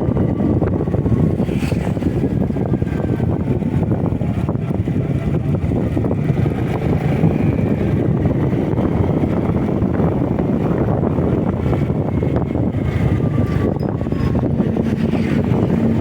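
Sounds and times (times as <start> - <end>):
motorcycle engine running: 0.0 - 16.0
road noise: 0.0 - 16.0
wind rushing over microphone: 0.0 - 16.0.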